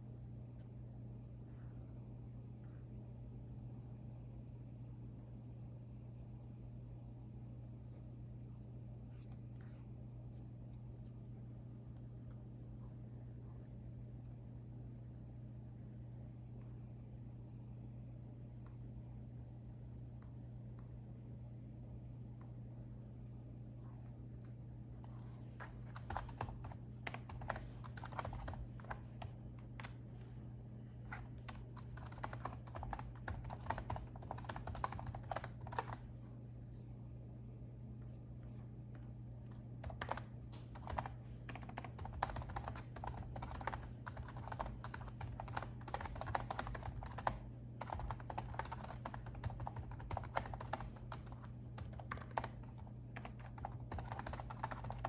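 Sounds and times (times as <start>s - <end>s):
steady low hum: 0.0s - 55.0s
laptop keyboard typing: 25.6s - 30.1s, 31.1s - 36.1s, 39.8s - 55.0s.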